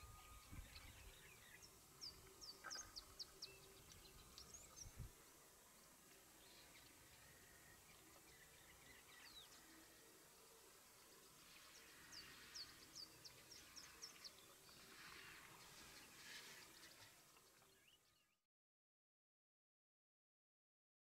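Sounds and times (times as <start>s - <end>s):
faint bush ambience: 0.0s - 18.4s.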